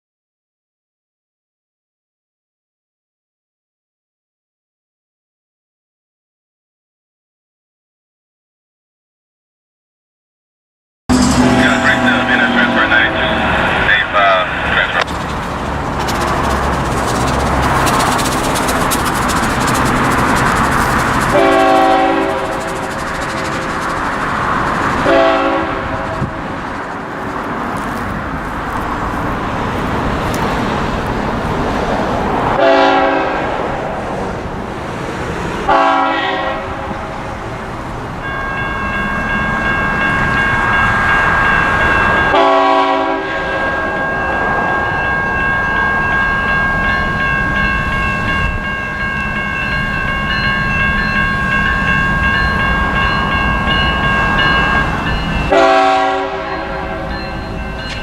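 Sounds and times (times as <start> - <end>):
high-pitched ringing tone: 11.1 - 12.9, 43.6 - 55.7
locomotive horn blasts: 11.1 - 13.9, 21.3 - 22.8, 25.0 - 26.4, 32.6 - 33.5, 35.7 - 37.0, 42.3 - 44.0, 55.5 - 57.2
freight train rumbling: 11.1 - 58.0.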